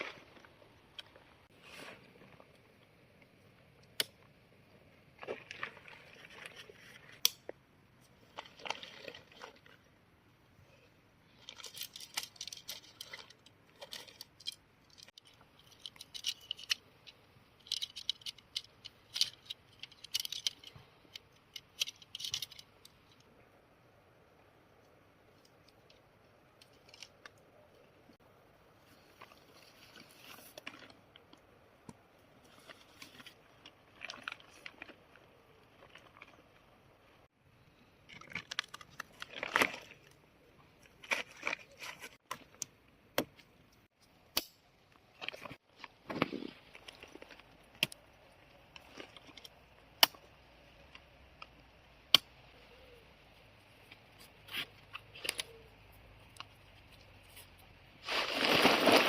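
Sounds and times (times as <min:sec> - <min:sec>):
rustling and crunching handling: 0:04.9 - 0:10.0, 0:24.7 - 0:37.3, 0:38.0 - 0:42.6, 0:52.9 - 0:59.0.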